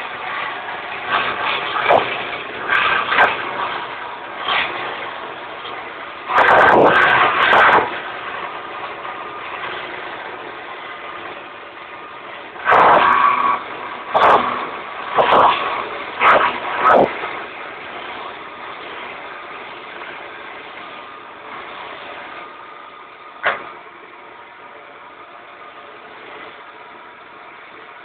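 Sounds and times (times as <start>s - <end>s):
loud bursts of noise: 0.0s - 28.0s.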